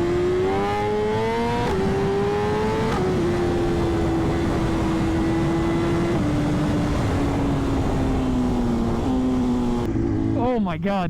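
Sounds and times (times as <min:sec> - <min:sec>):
motorcycle engine at high revs: 0:00.0 - 0:10.5
wind rush: 0:01.8 - 0:10.4.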